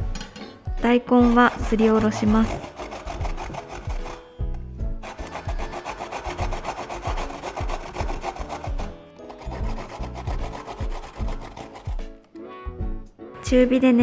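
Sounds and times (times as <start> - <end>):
background music: 0.0 - 14.0
radish rasping on grater: 1.1 - 4.3, 5.0 - 12.2.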